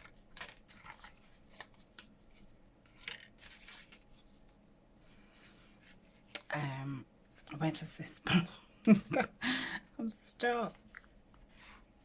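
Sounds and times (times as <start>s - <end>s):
paper pages rustling: 0.0s - 6.3s, 10.7s - 12.0s.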